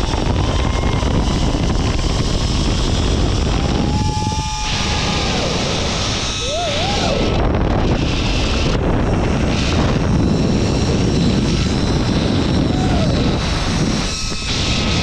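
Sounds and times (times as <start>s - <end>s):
pulleys running along cable: 0.0s - 15.0s
wind rushing on microphone: 0.0s - 15.0s
wavering tone: 3.4s - 7.4s.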